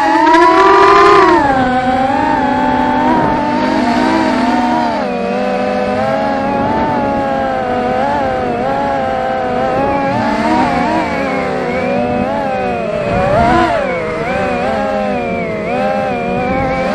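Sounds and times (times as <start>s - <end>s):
drone propellers whining: 0.0s - 16.9s.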